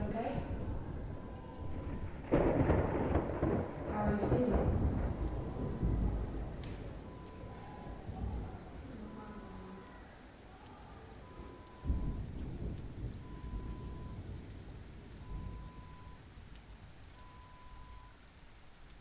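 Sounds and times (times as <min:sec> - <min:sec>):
low roll of thunder: 0:00.0 - 0:18.1
steady rain: 0:00.0 - 0:19.0
faint high beep: 0:09.0 - 0:10.0, 0:11.2 - 0:12.2, 0:13.2 - 0:14.2, 0:15.2 - 0:16.2, 0:17.2 - 0:18.1.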